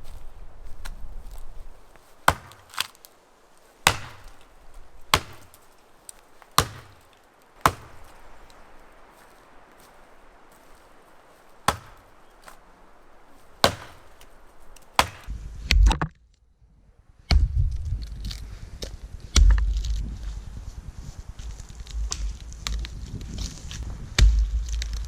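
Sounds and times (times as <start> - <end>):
axe chopping tree: 2.2 - 3.1, 3.8 - 8.6, 11.4 - 12.6, 13.4 - 15.3
heavy low thuds and crashing: 11.6 - 12.1.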